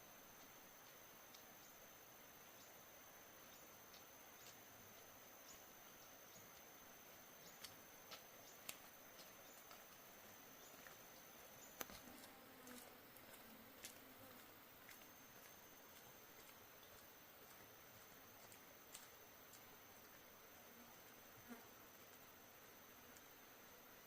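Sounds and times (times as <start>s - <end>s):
faint clicks: 7.5s - 9.8s.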